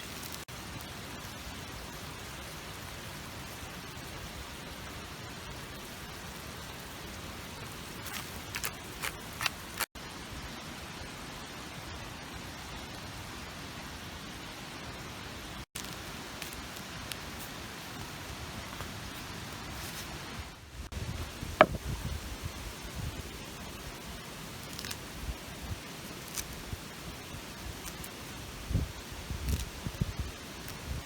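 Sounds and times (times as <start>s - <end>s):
sharp pops: 21.6s - 21.8s.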